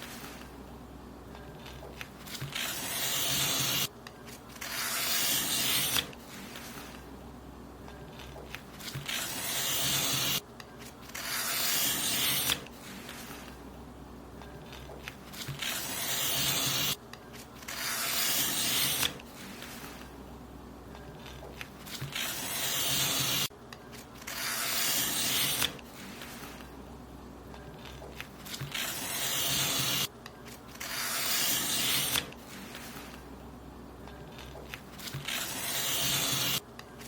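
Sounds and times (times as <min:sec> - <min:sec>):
paper being cut: 0:01.6 - 0:03.9, 0:04.5 - 0:07.0, 0:08.2 - 0:10.4, 0:11.0 - 0:13.5, 0:15.3 - 0:17.0, 0:17.6 - 0:20.1, 0:21.2 - 0:23.5, 0:24.2 - 0:26.6, 0:27.8 - 0:33.2, 0:34.3 - 0:36.6.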